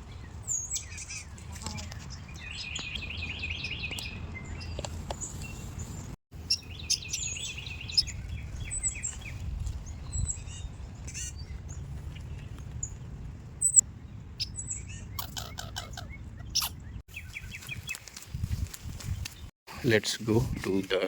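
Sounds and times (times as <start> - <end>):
songbirds chirping and trilling: 0.0 - 21.0
loud sharp bird chirp: 0.1 - 9.4, 14.4 - 18.0.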